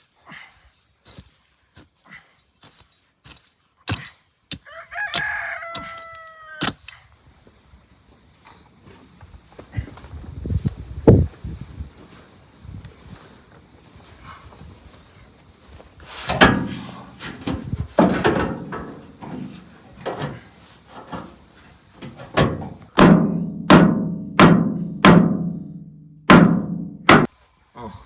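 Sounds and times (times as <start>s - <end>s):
hard drum-like strikes ringing: 23.0s - 27.3s.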